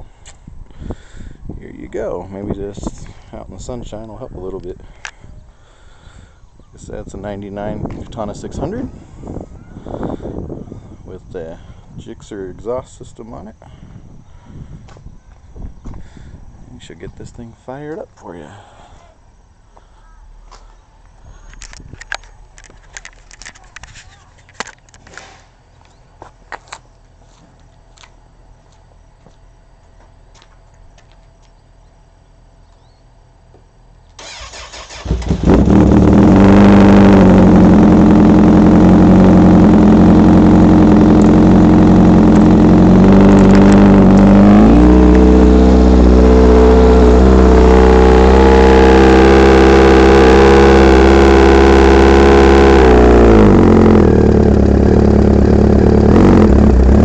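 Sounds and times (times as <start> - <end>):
motorcycle engine revving: 34.2 - 57.0.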